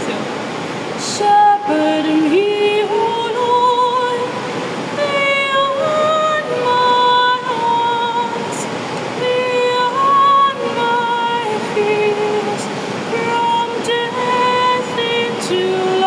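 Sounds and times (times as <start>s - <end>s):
heavy rain hissing: 0.0s - 16.0s
woman singing slow song: 1.0s - 16.0s.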